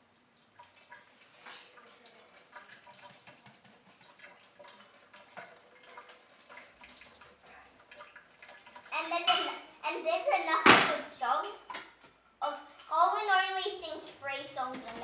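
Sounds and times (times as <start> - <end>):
cutlery clinking against bowls: 9.2 - 9.7.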